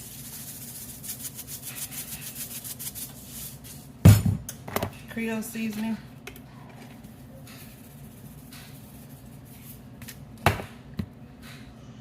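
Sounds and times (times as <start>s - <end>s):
container knocking on counter: 4.1s - 4.4s, 10.5s - 10.8s.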